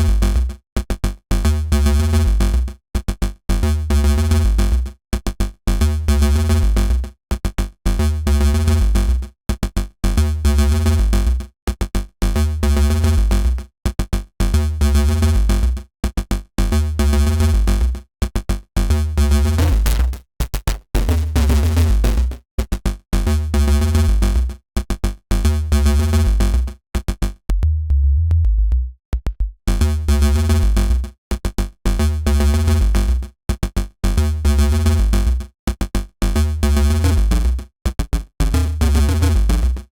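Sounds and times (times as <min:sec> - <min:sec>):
synth bass riff: 0:18.9 - 0:22.4, 0:27.4 - 0:31.1, 0:31.9 - 0:33.2, 0:34.1 - 0:35.4, 0:36.2 - 0:39.9.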